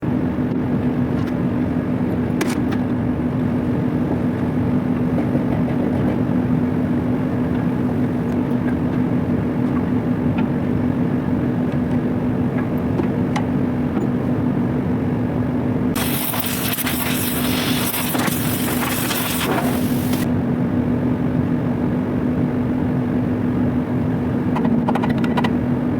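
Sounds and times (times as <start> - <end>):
packing machine humming: 6.6 - 20.3
hiss: 16.0 - 20.3.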